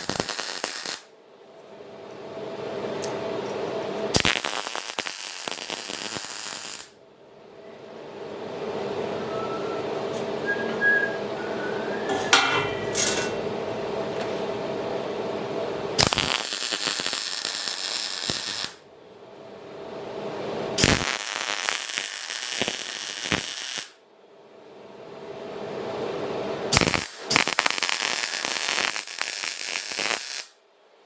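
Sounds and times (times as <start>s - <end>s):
loud crackling bursts: 0.0s - 1.1s, 4.2s - 7.0s, 16.0s - 18.8s, 20.8s - 23.9s, 26.7s - 30.5s
steady machine hum: 7.9s - 16.0s.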